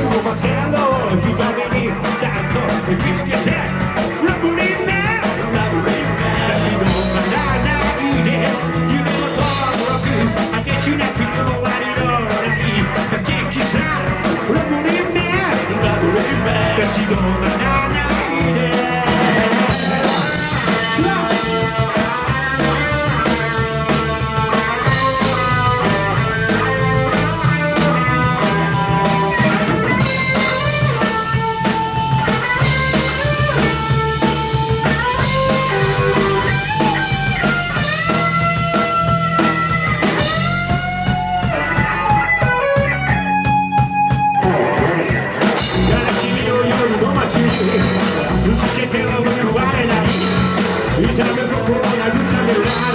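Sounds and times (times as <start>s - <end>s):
bass guitar: 0.0s - 52.9s
drums: 0.0s - 52.9s
electric guitar solo: 19.0s - 48.4s.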